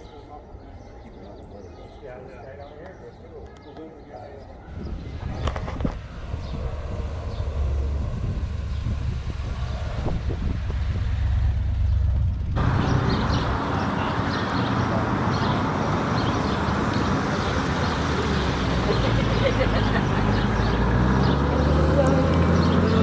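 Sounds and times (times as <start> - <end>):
car engine rumbling: 11.1 - 23.0.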